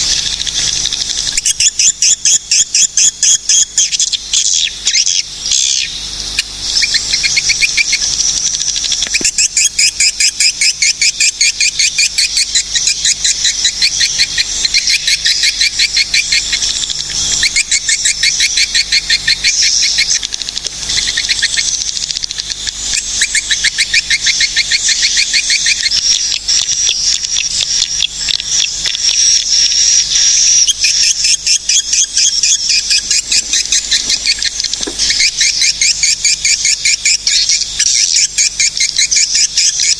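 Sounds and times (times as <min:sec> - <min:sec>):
swiftlets chirping: 0:25.8 - 0:39.2.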